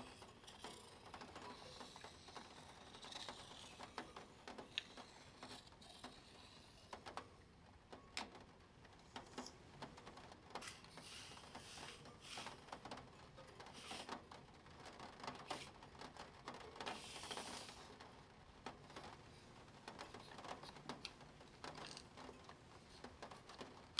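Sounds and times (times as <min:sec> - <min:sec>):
pen scratching on paper: 0:00.0 - 0:06.9, 0:10.6 - 0:12.6
small plastic clicks: 0:19.9 - 0:23.9.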